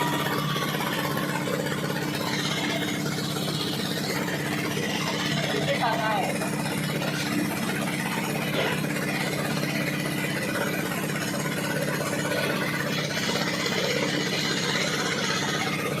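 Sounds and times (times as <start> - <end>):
machine rumbling and humming: 0.0 - 16.0.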